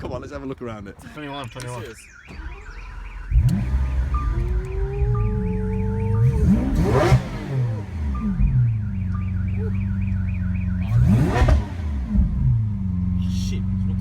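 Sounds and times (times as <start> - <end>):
sports car engine idling and revving: 1.2 - 14.0
fast high chirping alarm: 1.6 - 11.4.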